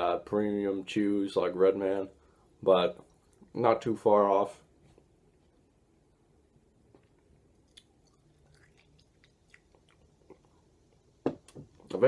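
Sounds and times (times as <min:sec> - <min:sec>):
mouth chewing with wet clicks: 0:06.9 - 0:11.1.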